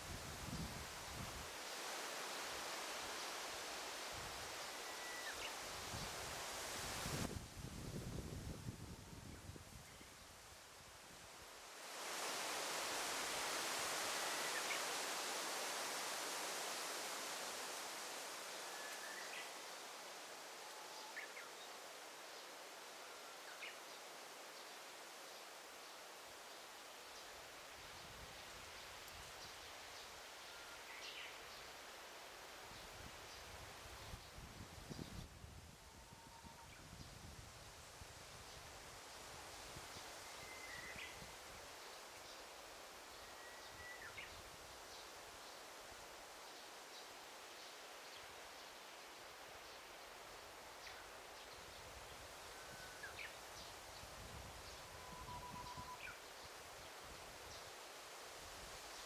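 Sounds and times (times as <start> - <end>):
soft rustling hiss: 0.0 - 59.0
faint bird chirps: 4.6 - 5.6, 40.0 - 41.3, 43.1 - 45.1, 54.6 - 56.4.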